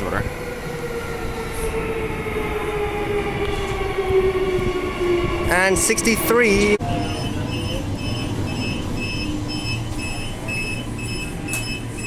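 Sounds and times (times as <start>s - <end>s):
electric train humming: 0.0s - 12.0s.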